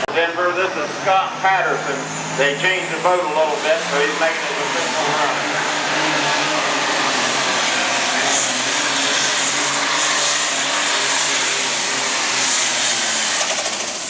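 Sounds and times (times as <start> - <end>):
tractor engine running under load: 9.0 - 14.0.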